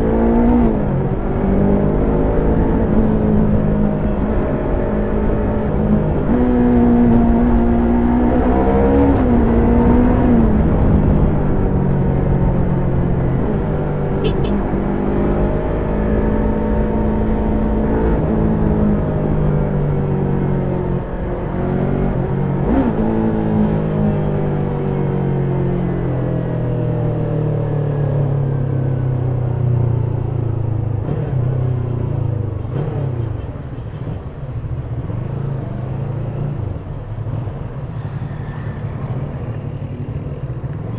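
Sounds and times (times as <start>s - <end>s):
motorcycle engine and exhaust: 0.0s - 40.9s.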